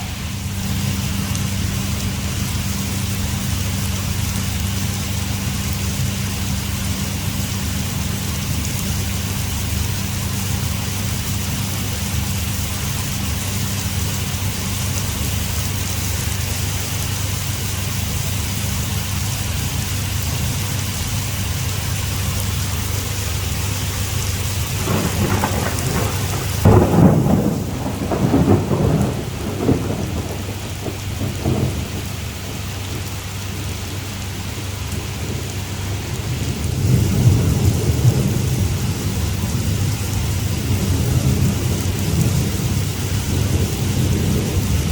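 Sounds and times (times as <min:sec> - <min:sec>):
heavy rain pouring: 0:00.0 - 0:44.9
rolling thunder rumble: 0:00.0 - 0:44.9.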